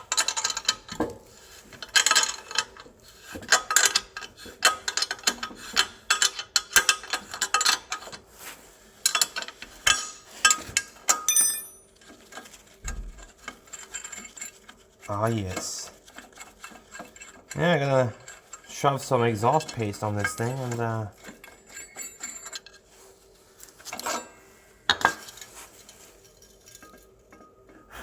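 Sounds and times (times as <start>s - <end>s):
metallic ring: 11.1s - 12.0s.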